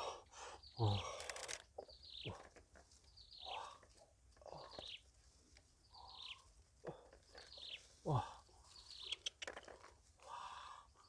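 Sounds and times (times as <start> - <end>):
faint bird chirps: 5.8 - 6.6, 7.3 - 9.5.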